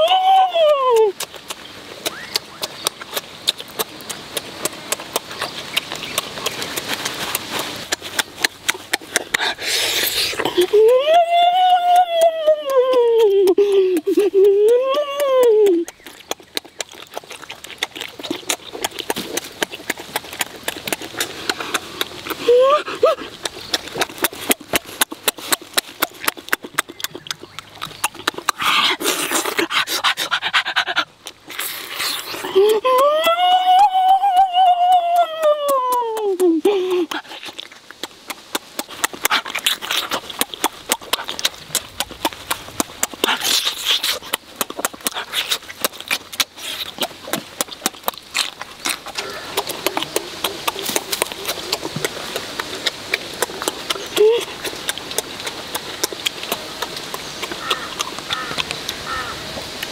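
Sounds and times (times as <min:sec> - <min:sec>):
wet chewing and lip-smacking: 0:00.0 - 0:59.9
hissing panting breaths: 0:08.8 - 0:10.8, 0:28.2 - 0:32.8.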